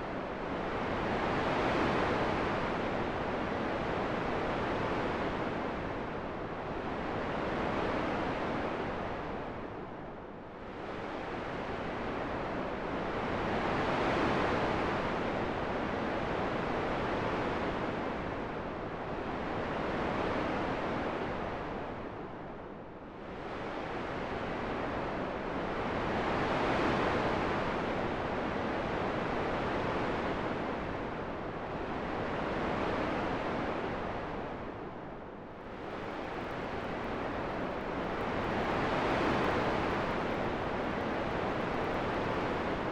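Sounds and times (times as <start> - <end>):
wind blowing: 35.6 - 42.9.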